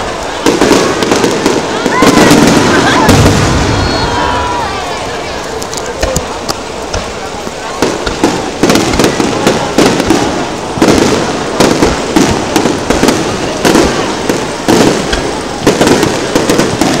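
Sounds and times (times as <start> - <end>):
firework shells bursting: 0.0 - 17.0.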